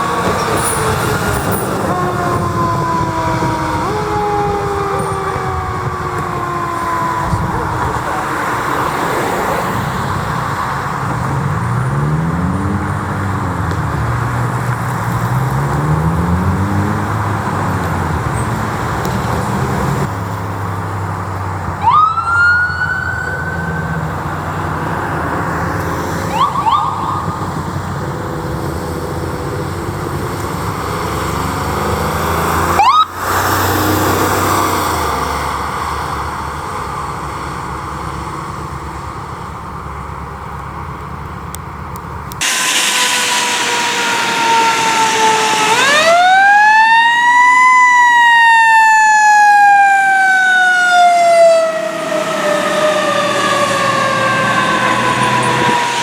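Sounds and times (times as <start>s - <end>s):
siren wailing: 0.0s - 10.5s, 21.8s - 28.1s, 32.7s - 33.3s, 42.4s - 56.0s
sharp rising siren whoops: 0.0s - 10.6s, 21.8s - 28.3s, 32.4s - 34.9s, 42.4s - 56.0s
steady high siren tone: 0.0s - 10.6s, 21.8s - 28.7s, 32.7s - 33.3s, 42.4s - 56.0s.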